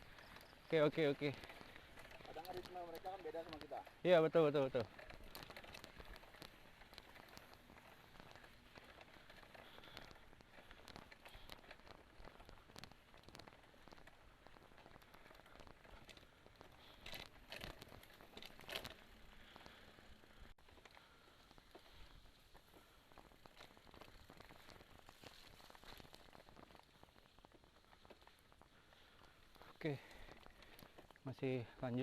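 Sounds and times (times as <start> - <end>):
bike tyres crunching on dirt: 0.0 - 32.0
small clicks and ticks: 0.0 - 32.0.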